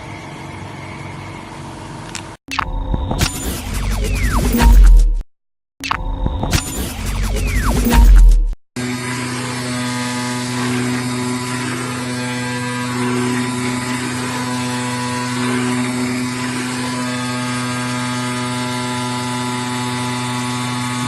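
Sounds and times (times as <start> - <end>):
faint machine whirs: 0.0 - 5.1, 6.6 - 21.0
loud burst of music: 6.4 - 8.6
cutting machine humming: 6.4 - 21.0.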